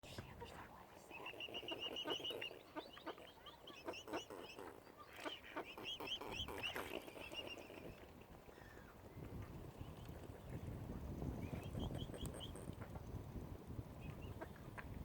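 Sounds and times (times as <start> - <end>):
birds chattering and chirping: 0.1 - 15.0.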